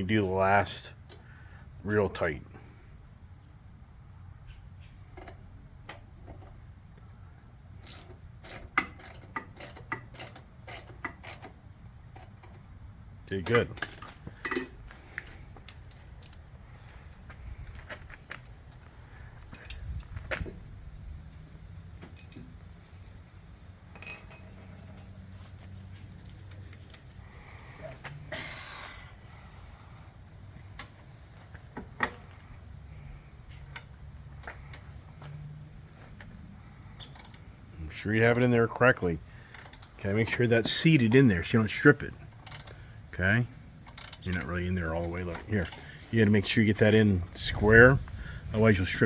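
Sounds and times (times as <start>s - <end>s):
hand ratchet clicking: 7.8s - 11.6s, 37.0s - 37.4s, 39.5s - 40.0s, 42.4s - 42.9s, 43.9s - 44.5s
sharp ringing metal clink: 23.9s - 25.3s.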